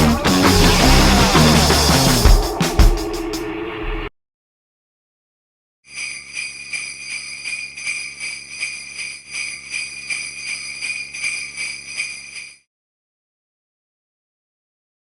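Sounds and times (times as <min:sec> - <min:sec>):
sleigh bells jingling: 0:05.9 - 0:12.7.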